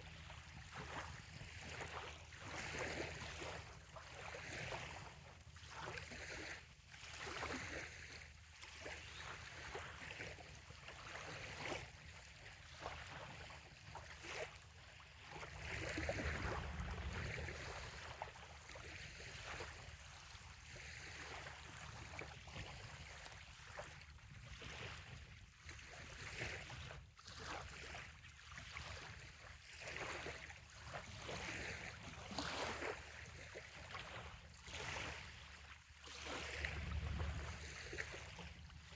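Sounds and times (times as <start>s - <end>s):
small waves lapping: 0.0s - 38.9s
low rumble: 15.7s - 18.9s, 36.5s - 38.9s.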